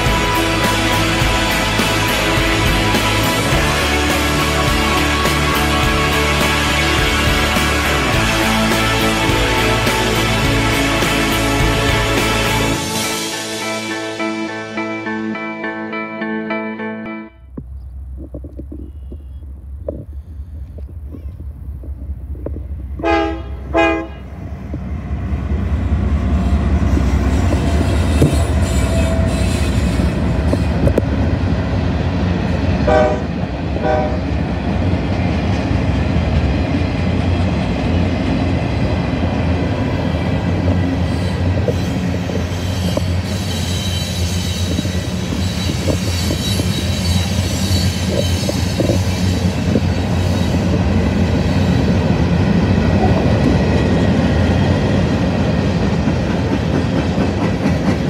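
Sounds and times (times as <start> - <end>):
freight train wheels on rails: 0.0 - 14.2, 17.5 - 58.0
deep rumble of locomotive engines: 0.0 - 15.2, 17.3 - 58.0
locomotive air horn blasts: 0.0 - 15.7, 23.0 - 24.4, 32.8 - 34.3.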